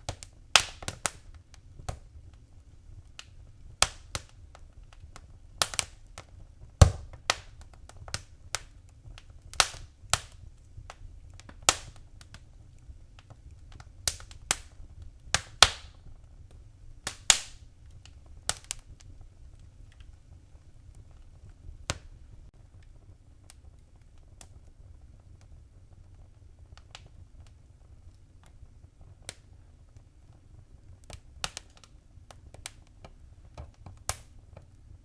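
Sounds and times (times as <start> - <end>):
sharp fire pops: 0.0 - 35.0
wood fire crackling: 0.0 - 35.0.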